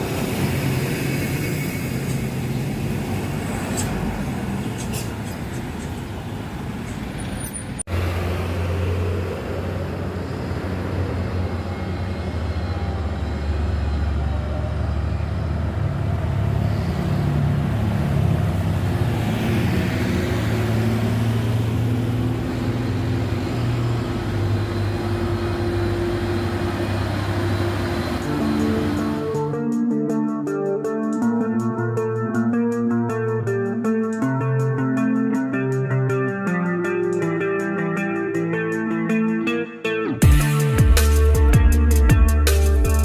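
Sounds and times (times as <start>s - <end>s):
diesel truck engines running: 0.0s - 29.7s.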